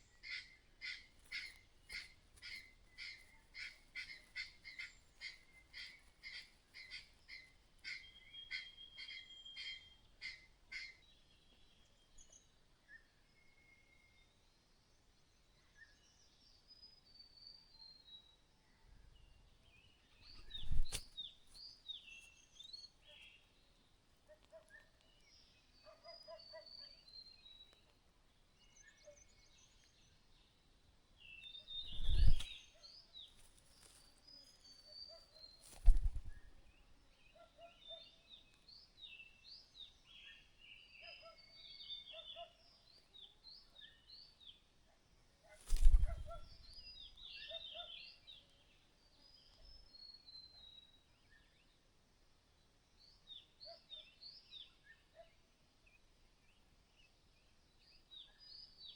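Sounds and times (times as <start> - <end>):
bird chirping: 19.1 - 23.8, 31.2 - 44.4, 45.6 - 48.6.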